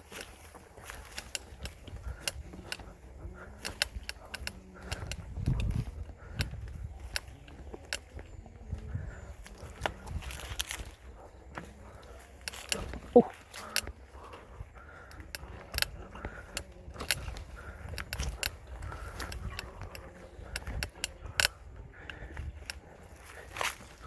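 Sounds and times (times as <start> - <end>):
bike chain clicking and jangling: 0.0 - 24.0
tyres rumbling on trail: 0.0 - 24.0.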